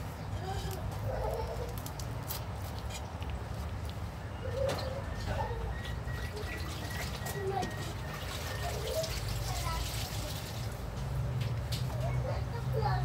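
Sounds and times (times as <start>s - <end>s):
dove-like bird cooing: 4.3s - 9.4s.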